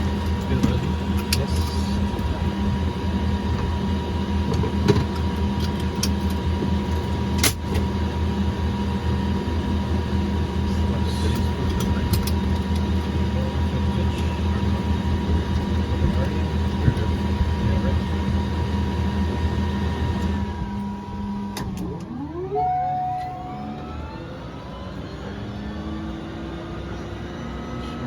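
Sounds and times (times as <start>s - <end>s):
propeller plane engine drone: 0.0s - 28.0s.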